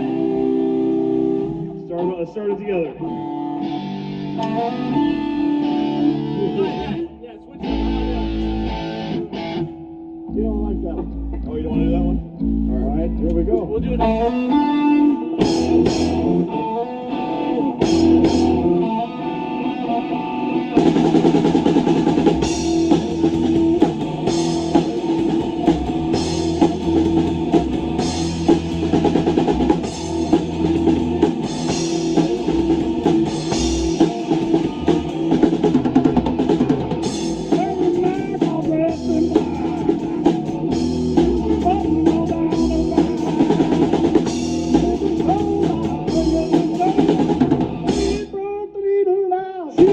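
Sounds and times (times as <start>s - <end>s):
electric guitar: 0.0s - 48.4s, 49.6s - 49.9s
drum kit: 15.4s - 48.4s.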